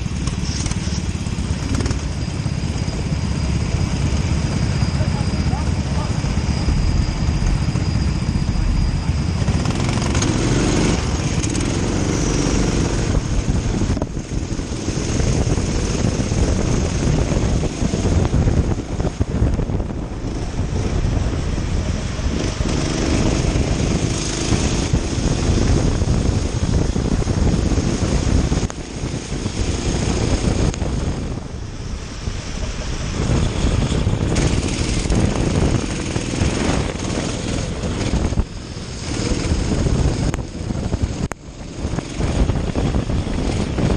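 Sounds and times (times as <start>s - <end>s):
wind: 0.0s - 43.9s
kart engine revving: 9.0s - 43.9s.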